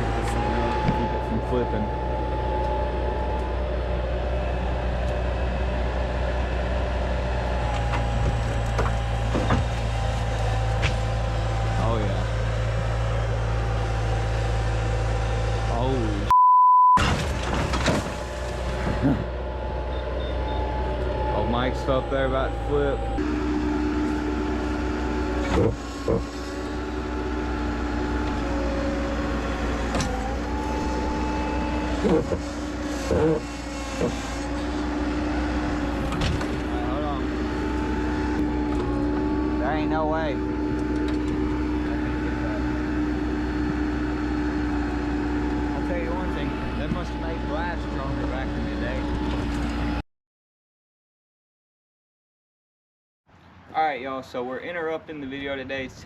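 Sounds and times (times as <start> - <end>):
heavy diesel engine running: 0.0 - 16.3, 17.0 - 50.0
sharp knocks and creaks: 7.6 - 11.2, 25.4 - 26.8, 29.4 - 36.7, 40.7 - 41.7.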